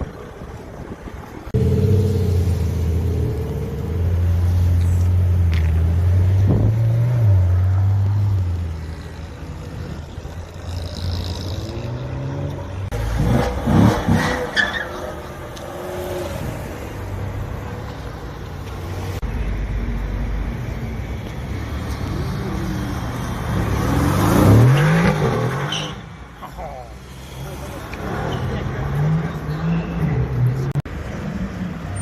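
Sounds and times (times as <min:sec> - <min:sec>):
supercar engines revving: 0:01.5 - 0:14.6.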